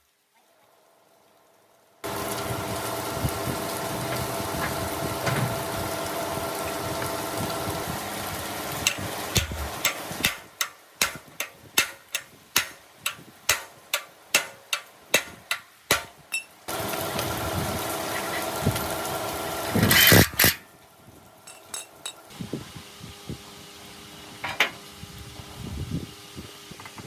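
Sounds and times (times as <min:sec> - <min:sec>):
machine hum: 0:00.8 - 0:10.2, 0:16.7 - 0:26.6.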